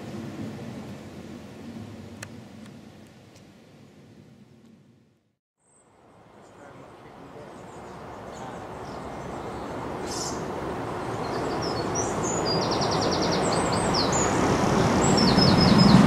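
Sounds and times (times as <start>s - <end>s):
small birds chirping: 5.6s - 16.0s
bird trill: 7.5s - 14.4s.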